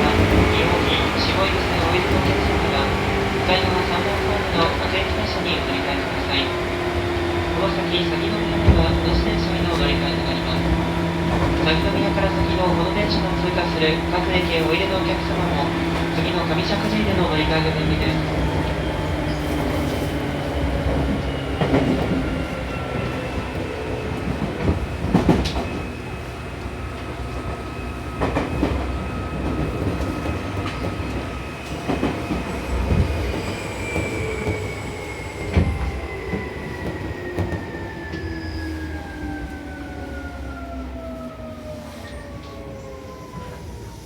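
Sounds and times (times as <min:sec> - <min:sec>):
train rumble: 0:00.0 - 0:44.0.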